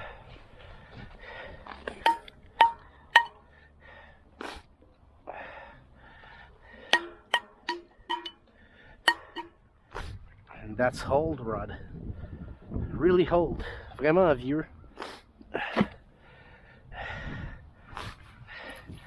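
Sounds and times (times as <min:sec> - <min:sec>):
scrap metal clinking: 0:02.1 - 0:03.4, 0:07.0 - 0:08.4, 0:09.1 - 0:09.5.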